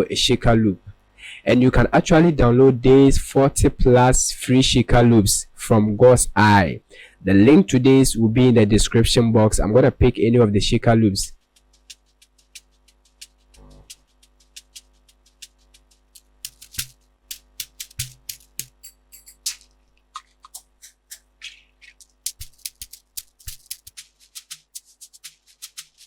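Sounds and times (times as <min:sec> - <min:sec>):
rhythmic shaker strokes: 0:11.3 - 0:26.0.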